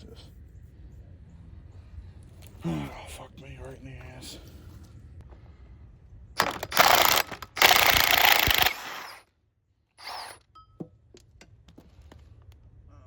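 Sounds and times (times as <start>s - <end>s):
impact wrench bursts: 6.4s - 9.2s, 10.0s - 10.4s.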